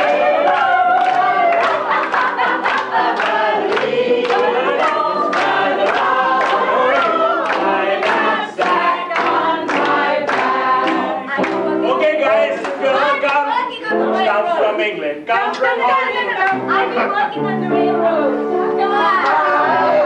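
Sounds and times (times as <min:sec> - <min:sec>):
group of people singing: 0:00.0 - 0:20.0.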